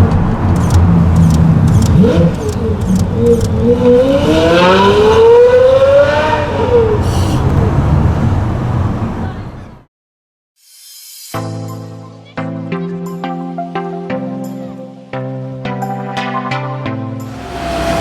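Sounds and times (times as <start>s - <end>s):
sports car engine accelerating: 0.2s - 9.1s, 17.3s - 18.0s.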